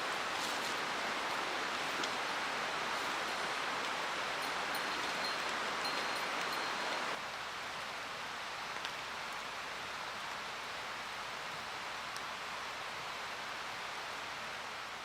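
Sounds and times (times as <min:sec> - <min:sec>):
mountain stream rushing: 0:00.0 - 0:07.2.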